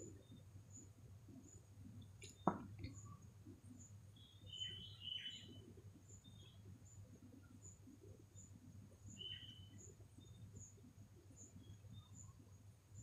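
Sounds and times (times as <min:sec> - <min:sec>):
faint bird chirps: 0:00.0 - 0:13.0
soft knock: 0:02.4 - 0:02.7.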